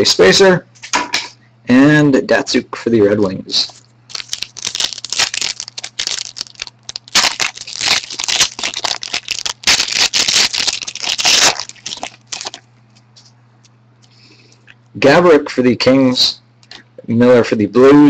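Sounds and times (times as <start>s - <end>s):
foil wrapper crinkling: 3.7s - 13.3s.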